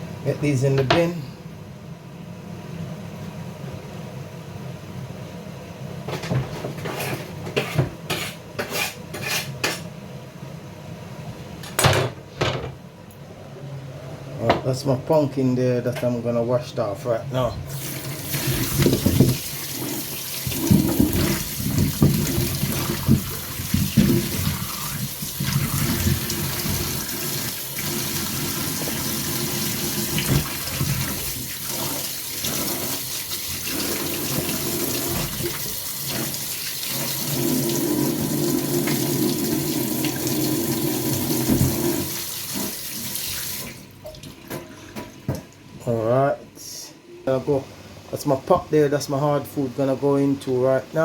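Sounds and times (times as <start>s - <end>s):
tap running into a sink: 18.2s - 33.0s, 38.8s - 45.5s.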